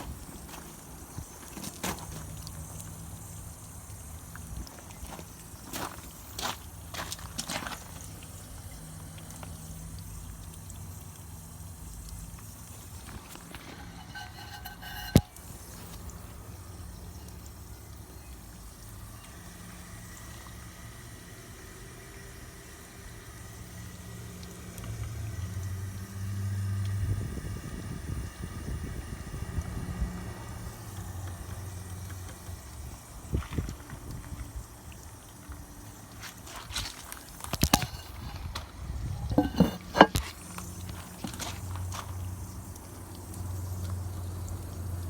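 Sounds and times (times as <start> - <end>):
small knocks: 13.1 - 15.5, 37.5 - 38.6, 39.3 - 40.4.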